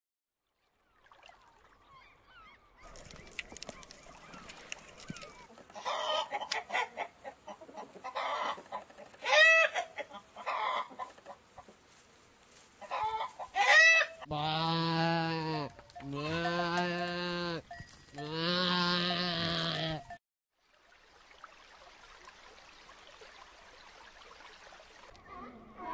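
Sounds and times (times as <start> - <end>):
chickens clucking and squawking: 5.2 - 11.8, 12.8 - 14.3
goat bleating: 12.9 - 20.2.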